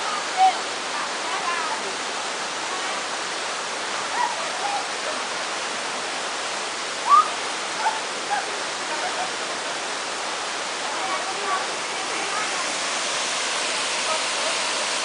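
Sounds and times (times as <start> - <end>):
waterfall rushing: 0.0 - 15.0
short high calls: 7.0 - 7.4.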